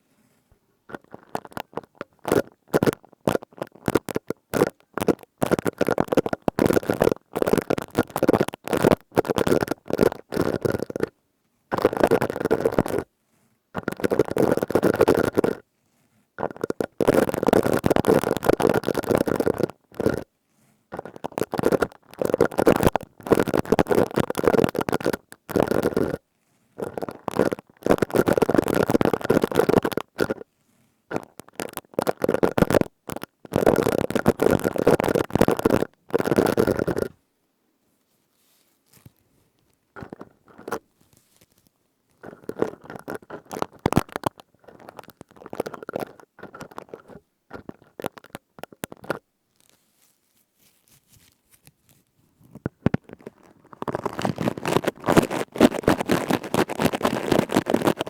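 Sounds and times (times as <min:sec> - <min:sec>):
scouring pad crackling: 0:53.7 - 0:58.0.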